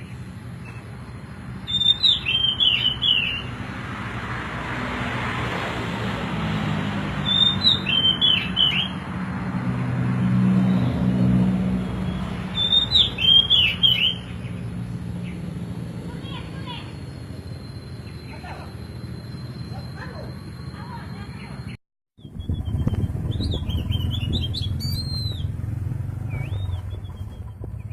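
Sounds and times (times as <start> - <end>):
bird chirping: 0.0 - 3.6, 7.2 - 9.0, 10.6 - 25.6, 26.2 - 27.9
low rumble of vehicles: 0.0 - 27.9.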